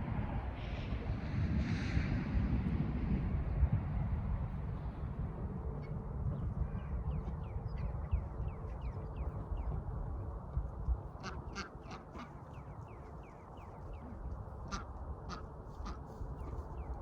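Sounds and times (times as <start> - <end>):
ducks quacking: 11.2 - 12.7, 13.9 - 16.6.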